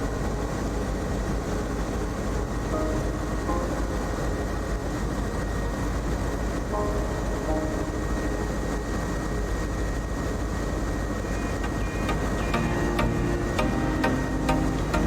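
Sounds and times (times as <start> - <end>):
high whine: 2.3 - 9.7, 11.0 - 15.0.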